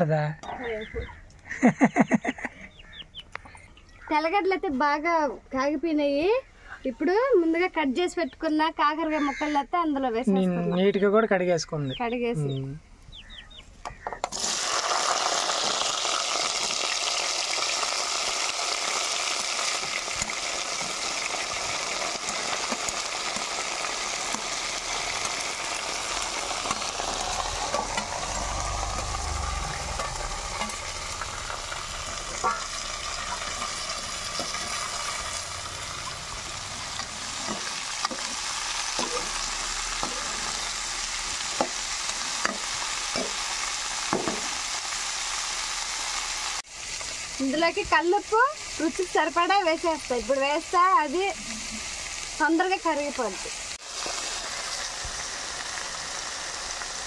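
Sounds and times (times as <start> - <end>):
vegetables sizzling in hot oil: 14.2 - 57.0
spoon knocking and scraping pan: 32.2 - 34.9, 36.9 - 39.4, 41.5 - 43.4, 44.1 - 44.6.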